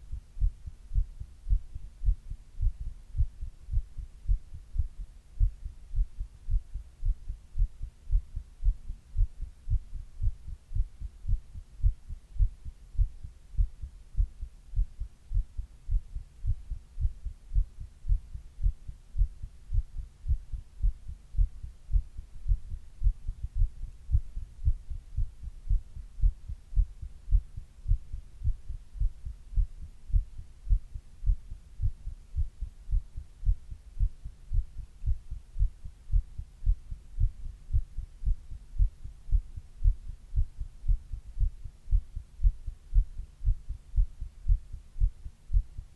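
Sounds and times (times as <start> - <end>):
heartbeat thumps: 0.0 - 45.9.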